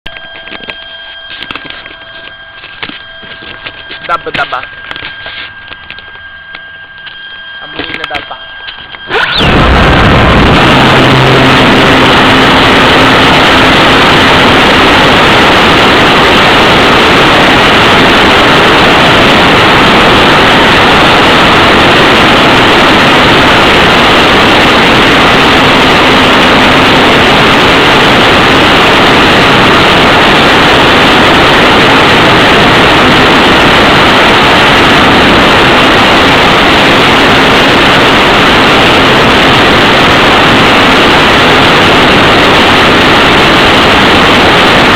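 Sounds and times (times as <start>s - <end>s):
faint electric motor hum: 0.1s - 44.9s
wind and propeller noise: 9.0s - 44.9s.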